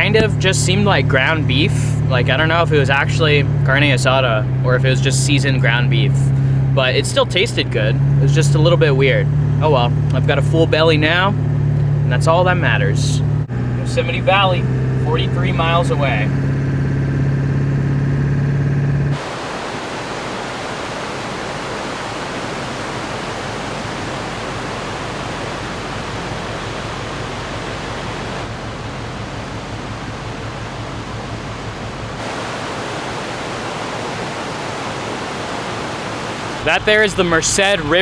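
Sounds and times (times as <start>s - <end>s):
diesel truck engine hum: 0.0s - 38.0s
river water rushing: 19.1s - 38.0s.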